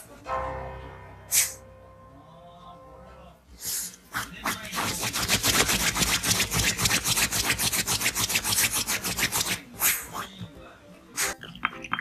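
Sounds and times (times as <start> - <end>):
dog claws scratching surface: 4.2 - 9.6.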